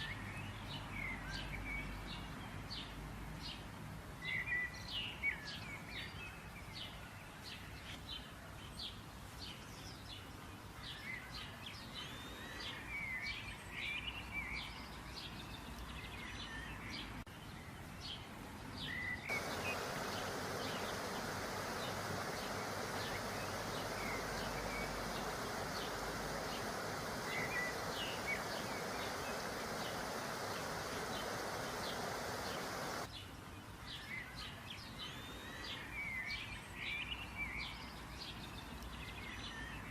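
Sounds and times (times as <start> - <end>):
songbirds chirping: 4.3 - 39.9
hissing buzz: 19.3 - 33.1.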